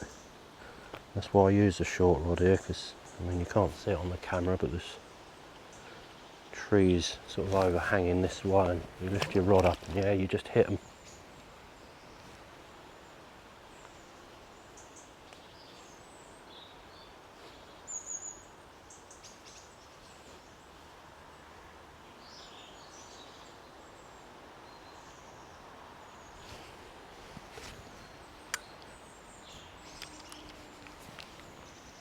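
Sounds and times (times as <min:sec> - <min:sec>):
outdoor background hiss: 0:00.0 - 0:32.0
small birds chirping: 0:00.0 - 0:32.0.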